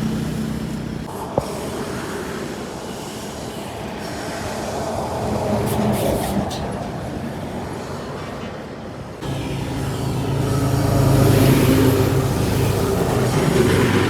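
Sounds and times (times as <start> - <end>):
heavy truck engine rumble: 0.0 - 1.2, 9.2 - 14.0.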